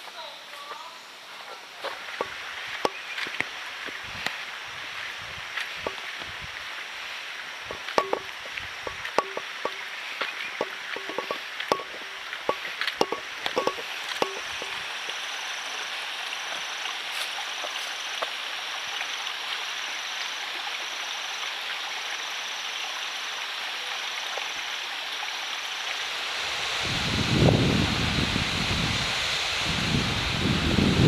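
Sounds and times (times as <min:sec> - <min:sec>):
waterfall rushing water: 0:02.0 - 0:31.0
sharp clicks and knocks: 0:07.7 - 0:15.2.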